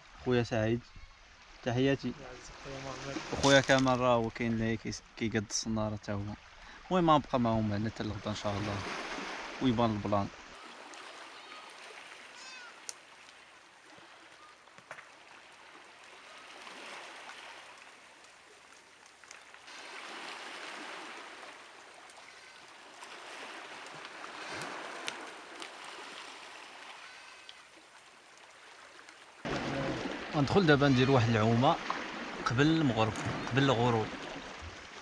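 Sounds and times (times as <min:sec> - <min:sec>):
sea waves washing on shore: 0:01.4 - 0:35.0
faint clicks: 0:12.8 - 0:13.4.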